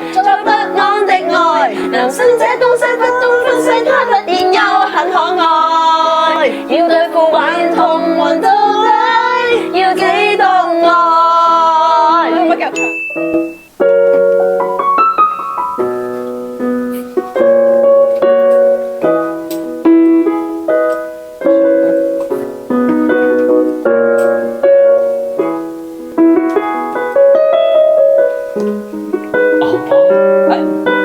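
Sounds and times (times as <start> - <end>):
piano playing melody over chords: 0.0 - 31.0.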